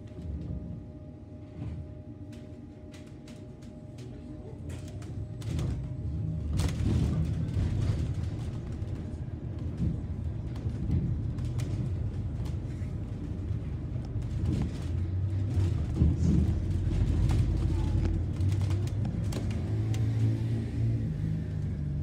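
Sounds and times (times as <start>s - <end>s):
bus engine rumbling: 0.0s - 22.0s
road noise: 6.6s - 22.0s.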